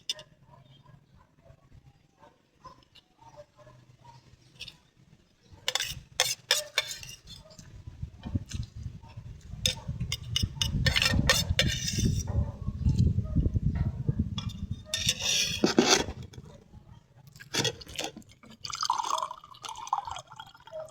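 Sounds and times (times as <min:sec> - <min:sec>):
cutlery clinking on plates: 0:05.6 - 0:07.5, 0:09.6 - 0:12.3, 0:14.4 - 0:16.4, 0:17.4 - 0:18.2.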